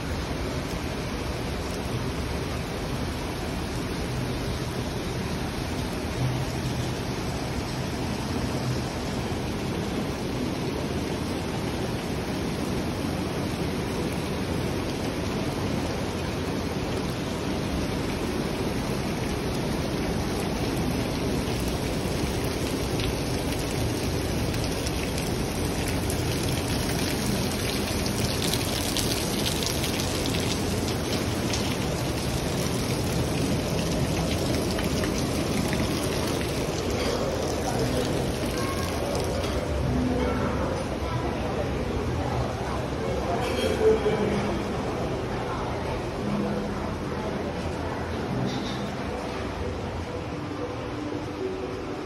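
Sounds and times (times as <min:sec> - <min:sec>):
heavy rain pouring: 0:00.0 - 0:52.0.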